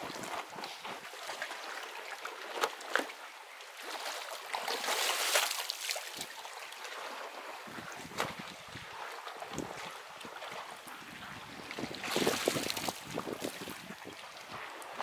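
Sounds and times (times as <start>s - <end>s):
sea water splashing on rocks: 4.0s - 6.3s, 11.8s - 14.6s.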